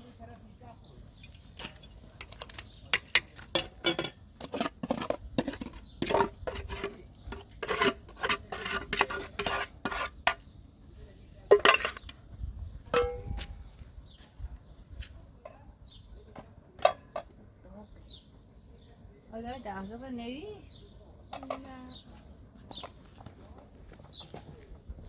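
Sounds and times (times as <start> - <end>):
dishes and pots clattering: 1.2 - 10.4, 11.5 - 12.1, 12.9 - 13.5, 16.8 - 17.3.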